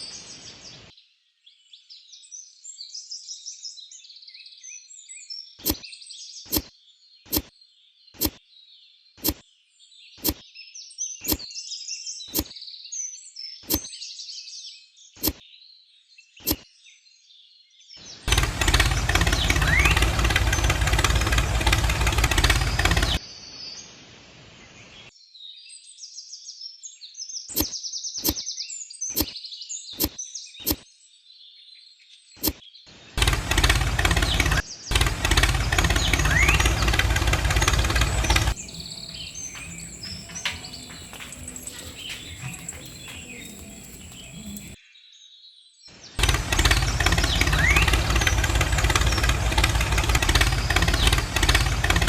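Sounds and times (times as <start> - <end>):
birds chirping: 18.3 - 23.2, 33.5 - 44.8, 46.6 - 52.0
motor buzzing drone: 18.3 - 23.2, 33.2 - 44.8, 46.2 - 52.0.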